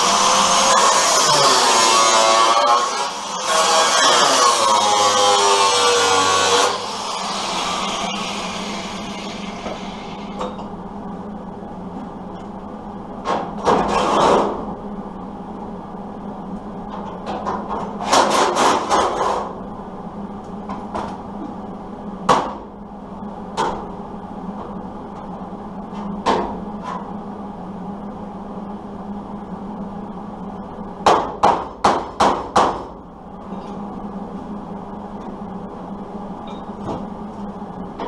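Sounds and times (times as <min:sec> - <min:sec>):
hammer on sheet metal: 0:31.0 - 0:32.9.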